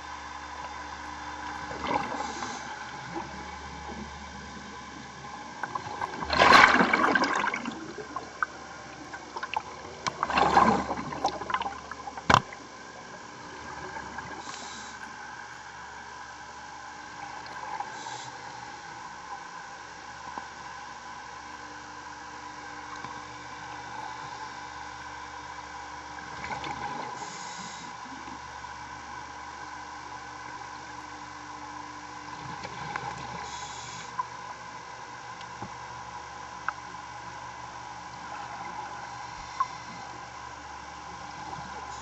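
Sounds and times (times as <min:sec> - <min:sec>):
steady hum: 0:00.0 - 0:42.0
underwater bubbles gurgling: 0:00.6 - 0:16.2, 0:16.9 - 0:20.5, 0:25.5 - 0:28.6, 0:32.2 - 0:35.9, 0:36.6 - 0:42.0.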